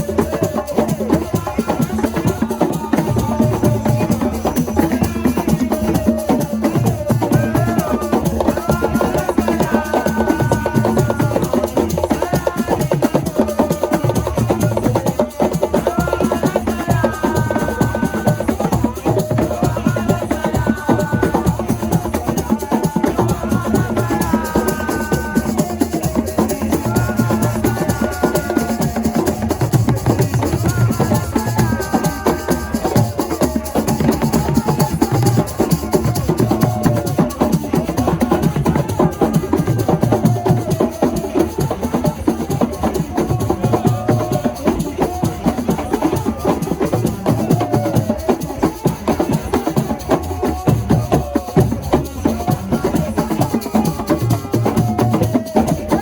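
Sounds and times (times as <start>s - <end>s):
fast dense drumming: 0.0s - 56.0s
person singing or calling: 0.0s - 56.0s.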